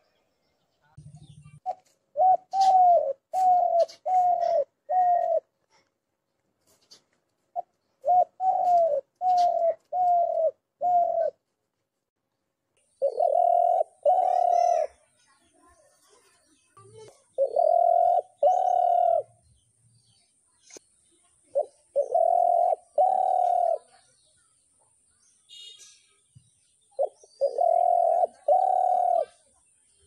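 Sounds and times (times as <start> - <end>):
small bird chirping: 0.0 - 5.9, 6.6 - 11.4, 12.8 - 30.0
dove cooing: 1.2 - 5.5, 7.6 - 11.4, 13.0 - 15.0, 17.3 - 19.4, 21.5 - 23.9, 27.0 - 29.5.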